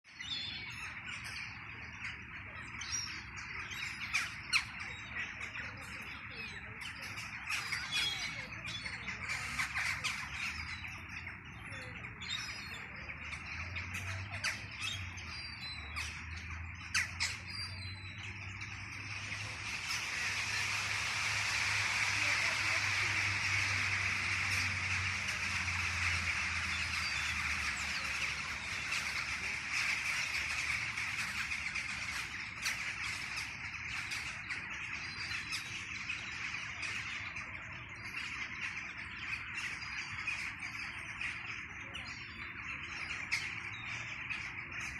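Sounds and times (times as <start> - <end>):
birds chirping: 0.0 - 44.9
steady hiss: 18.2 - 34.2.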